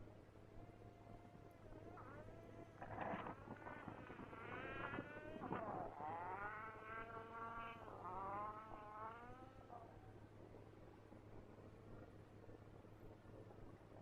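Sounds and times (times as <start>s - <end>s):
distant engine shifting gears: 1.6s - 9.9s.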